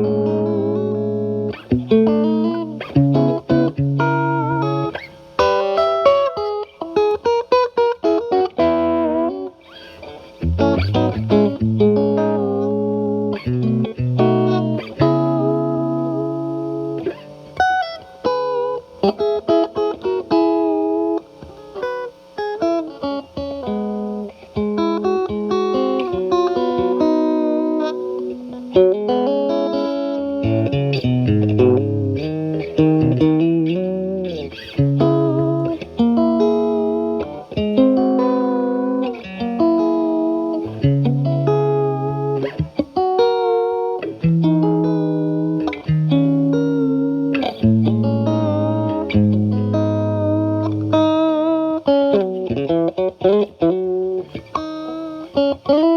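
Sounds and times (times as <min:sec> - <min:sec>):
overdriven electric guitar: 0:00.0 - 0:55.9.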